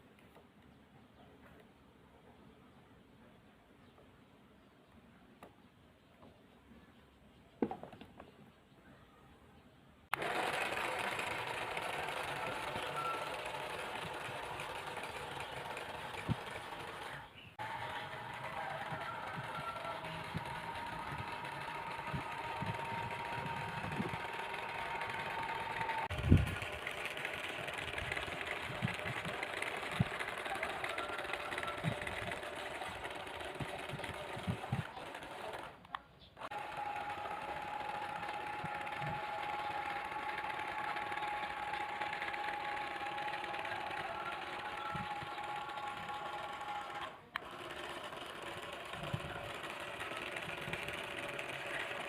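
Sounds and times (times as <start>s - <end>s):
small electric motor whirring: 10.1s - 35.8s, 36.4s - 52.0s.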